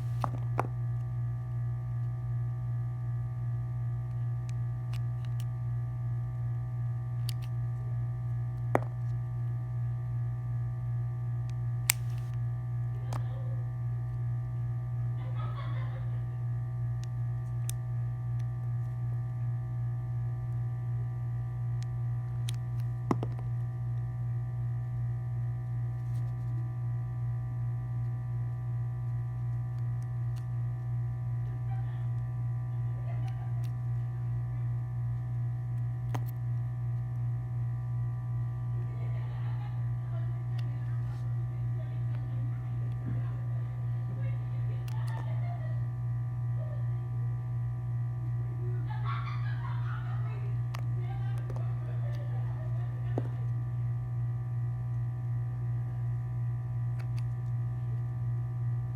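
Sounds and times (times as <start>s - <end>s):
low electrical hum: 0.0s - 58.9s
sharp clicks: 11.9s - 12.4s.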